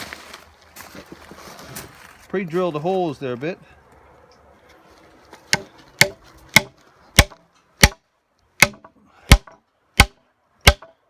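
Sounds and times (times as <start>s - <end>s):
hammer striking iron spike: 5.5s - 8.0s, 8.6s - 11.0s.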